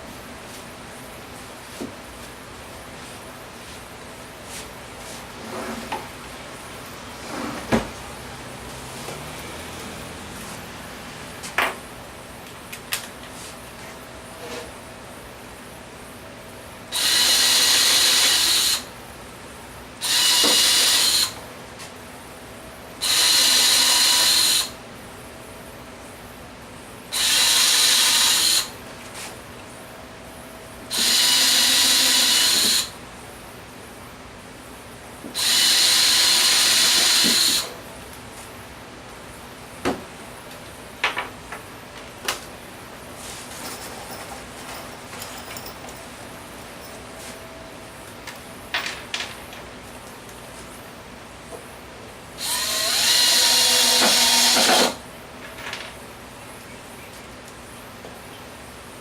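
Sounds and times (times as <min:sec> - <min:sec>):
power drill running: 0:16.9 - 0:18.9, 0:20.0 - 0:21.4, 0:23.0 - 0:24.8, 0:27.1 - 0:28.8, 0:30.9 - 0:33.0, 0:35.4 - 0:37.7, 0:52.4 - 0:55.0.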